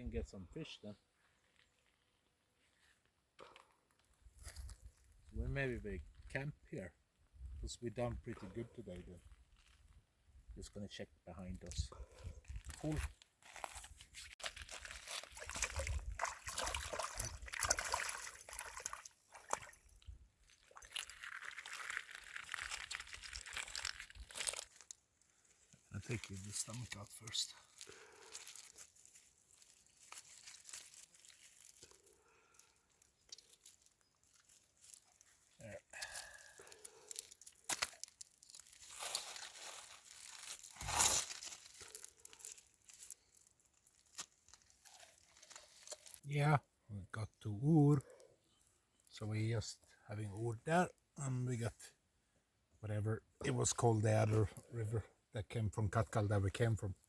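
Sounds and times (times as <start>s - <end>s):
crinkling and rustling handling noise: 1.2s - 6.5s, 8.0s - 10.7s, 11.4s - 46.4s
water sloshing and splashing: 14.4s - 24.6s.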